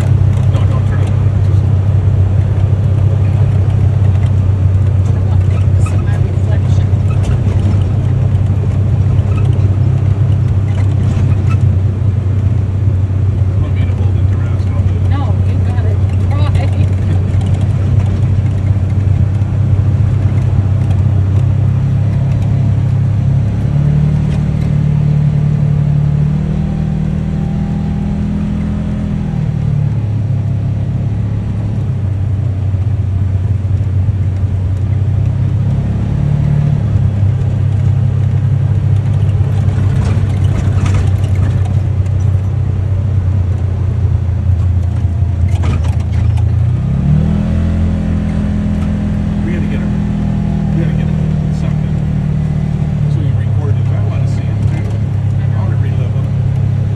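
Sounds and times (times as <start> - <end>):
utility vehicle engine running: 0.0 - 56.9
short rattles: 13.7 - 22.7, 38.7 - 42.6, 44.5 - 46.6.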